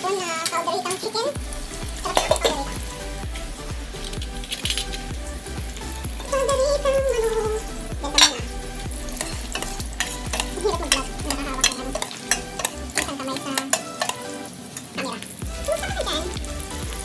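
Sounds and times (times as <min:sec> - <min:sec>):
stew sizzling: 0:00.0 - 0:17.0
metal ladle scraping a pot: 0:09.2 - 0:14.3
ladle clinking against metal pot: 0:11.6 - 0:14.3.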